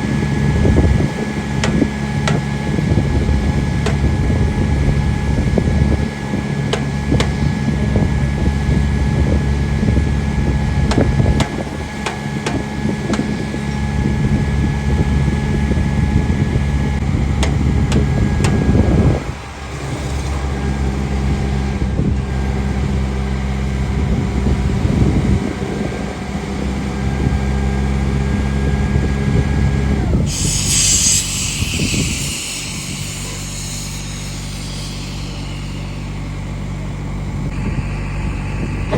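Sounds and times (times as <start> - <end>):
train engine drone: 0.0 - 38.9
high hiss: 30.2 - 37.5.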